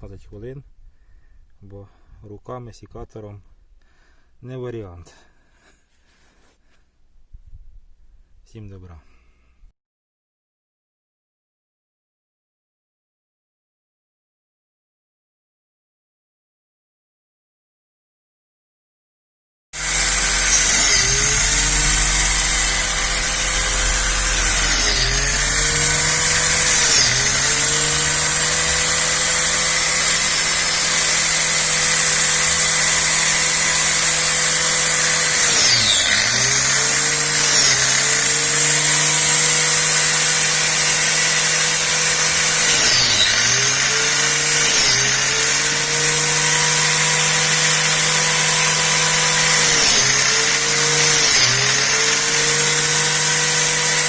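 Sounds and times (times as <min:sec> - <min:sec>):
angle grinder whining: 0:19.8 - 0:54.0.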